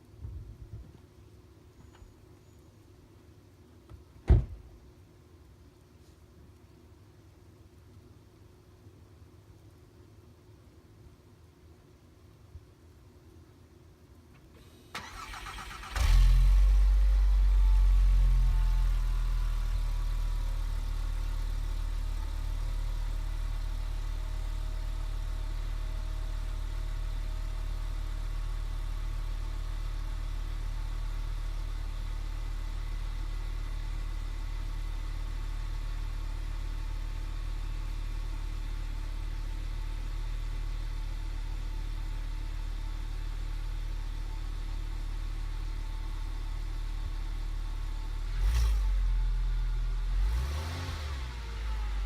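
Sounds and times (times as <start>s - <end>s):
car engine starting and idling: 14.4s - 52.0s.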